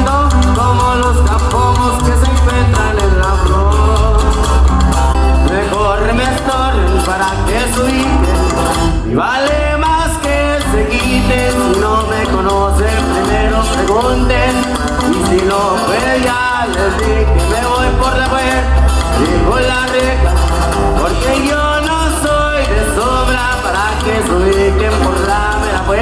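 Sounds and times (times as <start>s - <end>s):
deep pulsing bass line: 0.0s - 9.2s
live band playing a song: 0.0s - 26.0s.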